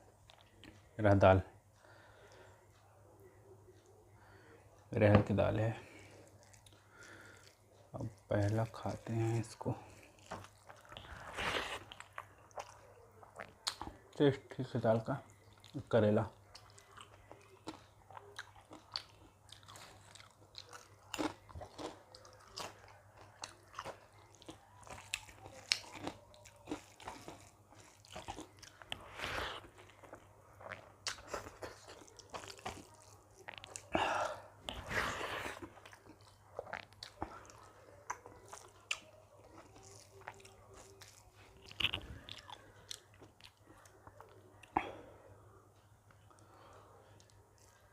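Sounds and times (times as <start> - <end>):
close chewing and biting: 5.9 - 14.3, 15.3 - 44.8
wet mouth clicks: 41.6 - 42.5.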